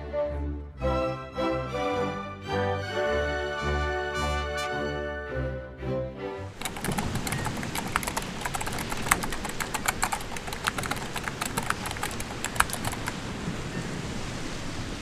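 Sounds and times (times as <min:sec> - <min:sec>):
rapid sharp clicks and knocks: 0:06.6 - 0:13.2
steady rushing noise: 0:06.6 - 0:15.0.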